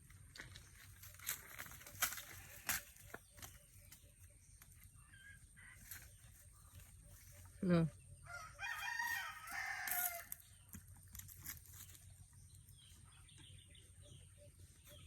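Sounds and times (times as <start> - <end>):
rooster crowing: 8.2 - 10.4.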